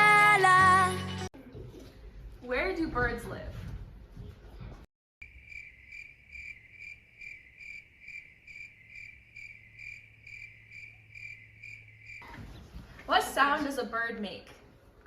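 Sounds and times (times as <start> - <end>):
cricket chirping: 5.2 - 12.2.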